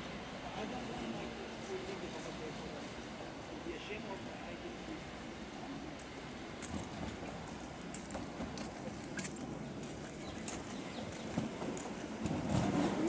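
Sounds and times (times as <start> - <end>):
train wheels clicking over rail joints: 3.1 - 13.0.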